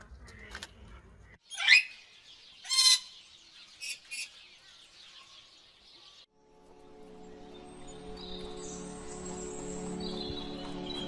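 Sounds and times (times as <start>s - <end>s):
shrill bird-like calls: 1.4s - 4.6s.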